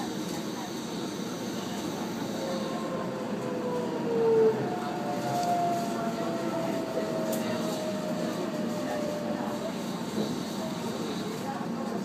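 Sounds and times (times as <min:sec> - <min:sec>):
train running gear rumble: 0:00.0 - 0:12.0.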